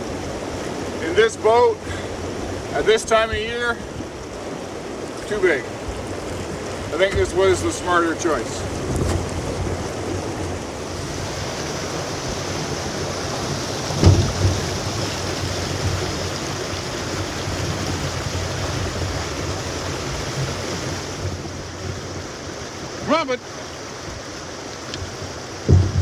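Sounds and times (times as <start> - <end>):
river water rushing over rocks: 0.0 - 26.0
sharp thump: 14.0 - 14.9, 25.6 - 26.0.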